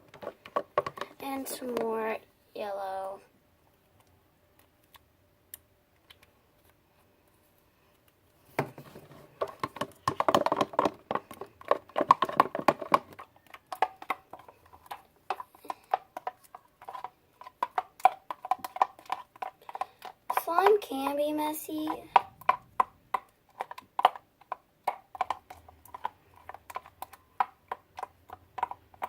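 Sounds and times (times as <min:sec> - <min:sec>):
spoon scraping and clicking in bowl: 0:13.1 - 0:20.8.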